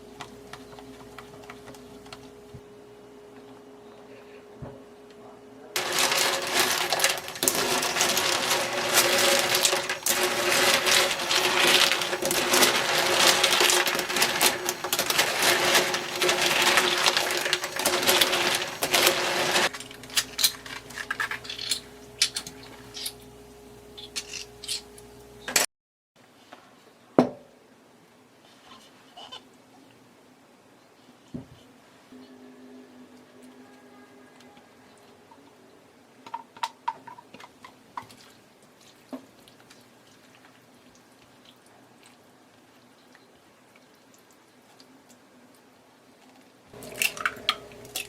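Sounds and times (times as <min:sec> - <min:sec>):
shells clattering in a bowl: 0:05.8 - 0:23.2.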